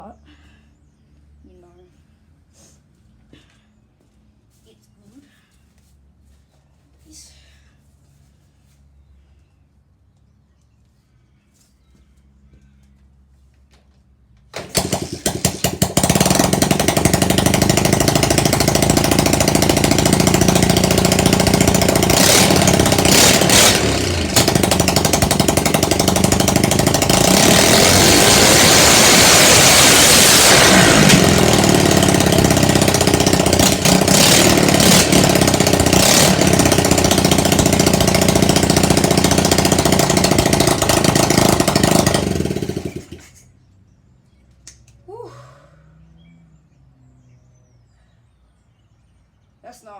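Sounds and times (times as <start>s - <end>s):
motorcycle engine revving: 14.5s - 43.4s
motorcycle engine running: 14.5s - 43.4s
motorcycle engine sputtering: 14.5s - 43.4s.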